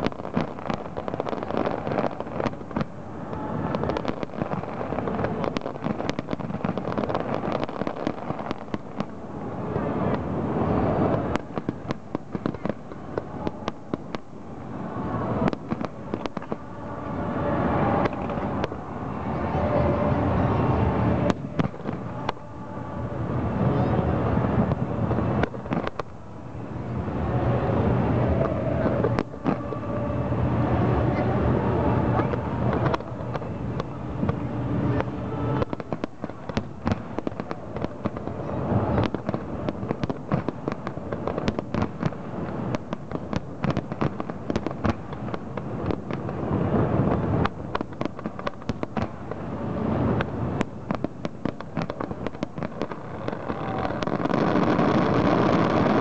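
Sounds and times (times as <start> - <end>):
continuous low rumble: 0.0 - 56.0
fireworks bangs and crackles: 0.0 - 56.0.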